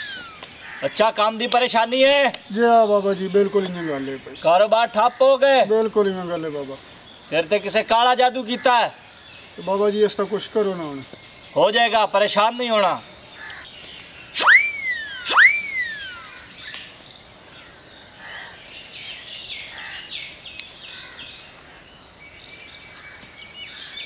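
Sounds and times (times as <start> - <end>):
bird whistled calls sliding down: 0.0 - 0.5, 14.3 - 16.9
small birds chirping: 0.0 - 24.0.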